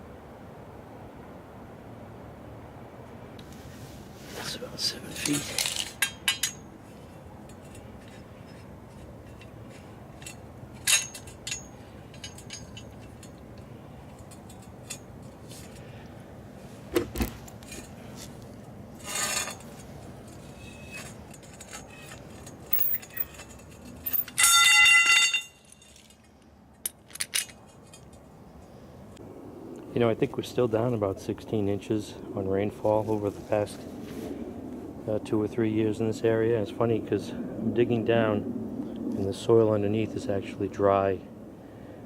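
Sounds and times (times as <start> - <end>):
metal parts clinking: 5.2 - 15.8, 16.9 - 28.4
ringing metallic clang: 20.5 - 26.1.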